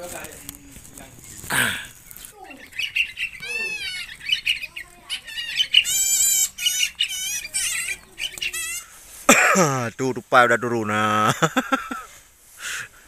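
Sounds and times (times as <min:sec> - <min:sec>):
birds chirping and squawking: 0:00.0 - 0:12.0.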